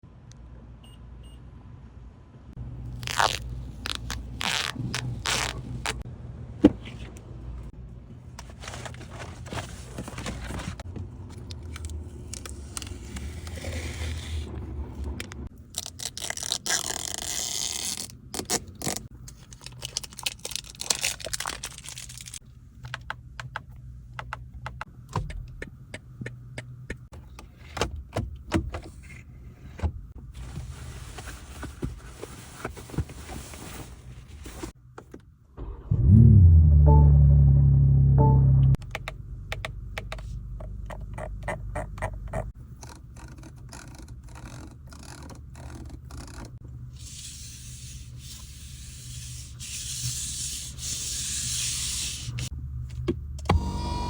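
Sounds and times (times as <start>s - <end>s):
scraping and crunching handling noise: 8.2s - 14.6s
low steady hum: 29.0s - 44.2s.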